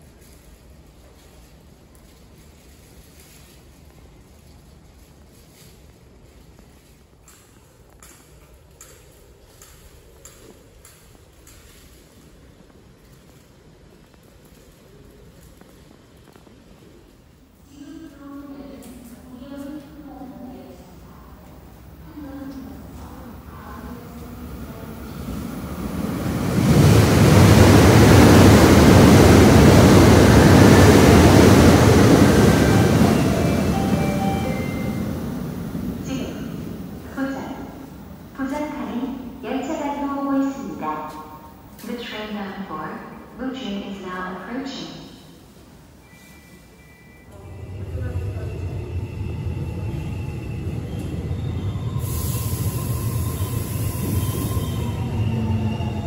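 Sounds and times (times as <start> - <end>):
train rushing into station: 8.8 - 56.0
high hiss: 52.0 - 54.8.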